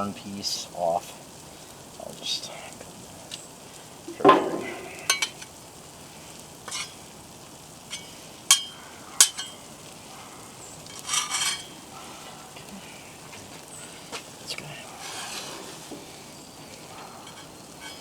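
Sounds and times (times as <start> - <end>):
food sizzling: 0.0 - 18.0
metal utensil scraping griddle: 4.1 - 5.6, 6.6 - 7.2, 7.8 - 9.7, 10.7 - 12.4, 14.6 - 18.0.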